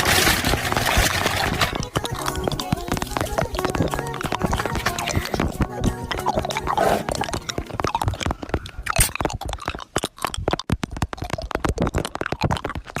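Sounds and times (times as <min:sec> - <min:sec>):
plastic packaging crinkling: 0:00.0 - 0:05.7.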